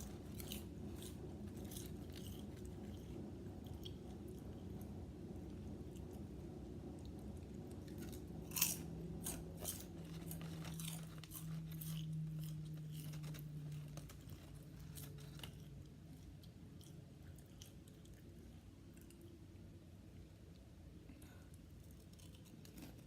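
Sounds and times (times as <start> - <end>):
potato chips crunching: 0.0 - 4.8, 7.0 - 18.3, 21.8 - 23.0
low steady hum: 0.0 - 23.0.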